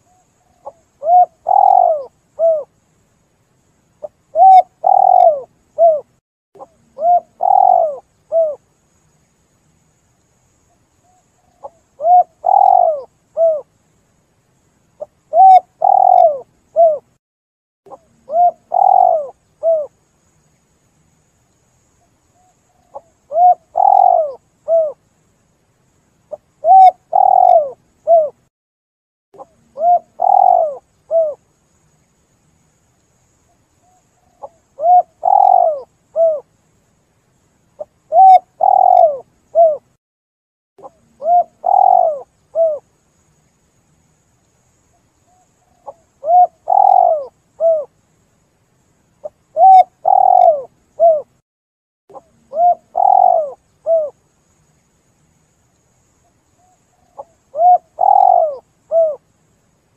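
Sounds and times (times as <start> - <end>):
dove cooing: 0.0 - 2.7, 4.0 - 8.6, 11.5 - 13.7, 15.0 - 17.1, 17.9 - 20.0, 22.4 - 25.0, 26.3 - 28.4, 29.4 - 31.4, 34.3 - 36.5, 37.8 - 39.9, 40.8 - 42.9, 45.8 - 47.9, 49.2 - 51.3, 52.1 - 54.2, 57.0 - 59.2.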